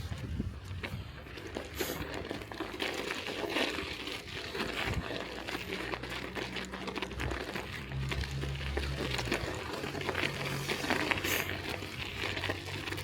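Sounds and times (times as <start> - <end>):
bicycle tyres crunching on snow: 0.0 - 13.0
low rumble: 6.1 - 13.0.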